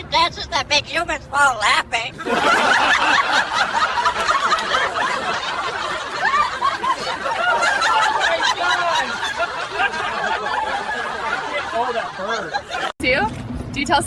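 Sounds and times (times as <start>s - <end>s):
overlapping voices: 2.2s - 12.9s
people laughing: 2.2s - 13.0s.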